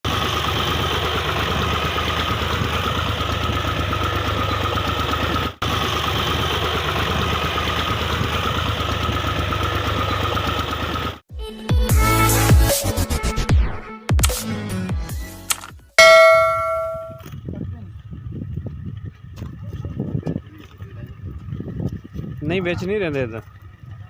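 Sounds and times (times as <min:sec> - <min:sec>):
tractor diesel engine running: 0:00.1 - 0:11.2.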